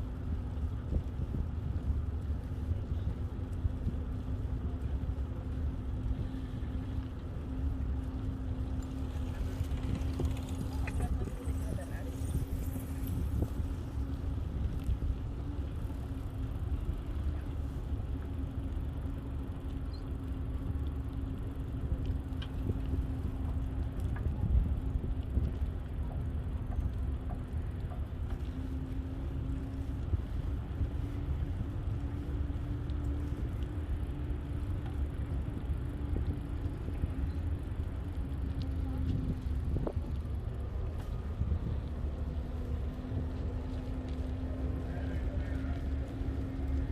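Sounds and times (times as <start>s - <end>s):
bicycle tyres rumbling: 0.0s - 46.9s
wind on microphone: 0.2s - 7.0s, 9.0s - 16.0s, 21.8s - 44.0s.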